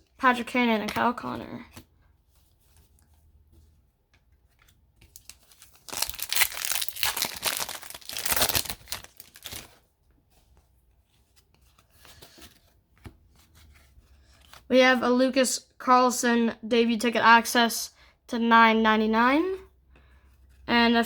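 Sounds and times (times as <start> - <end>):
card handling: 4.5 - 9.7
wrapper tearing and crinkling: 5.1 - 9.8.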